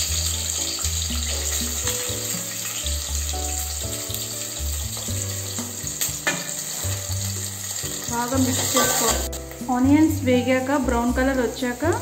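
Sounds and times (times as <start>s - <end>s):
background music: 0.0s - 12.0s
onions sizzling in hot oil: 0.0s - 12.0s.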